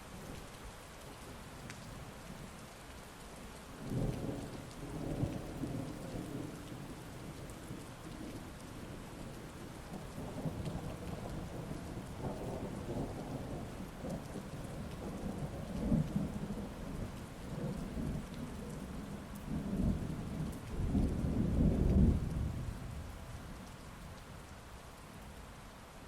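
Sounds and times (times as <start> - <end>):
heavy rain: 0.0 - 26.0
thunder rumbling: 9.9 - 23.4.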